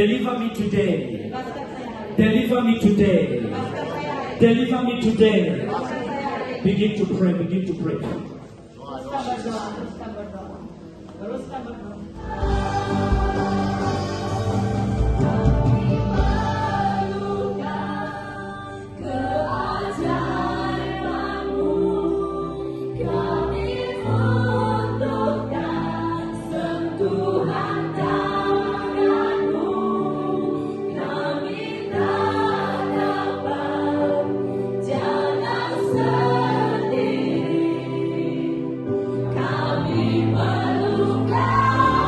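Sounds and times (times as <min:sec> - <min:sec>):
several voices singing: 0:12.1 - 0:42.0.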